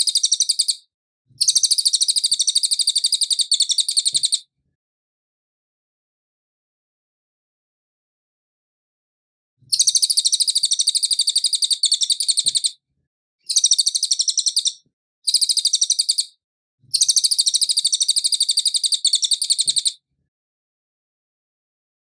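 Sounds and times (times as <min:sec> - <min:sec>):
bird high-pitched trill: 0:00.0 - 0:00.8, 0:01.4 - 0:04.4, 0:09.7 - 0:12.7, 0:13.5 - 0:16.4, 0:17.0 - 0:20.0.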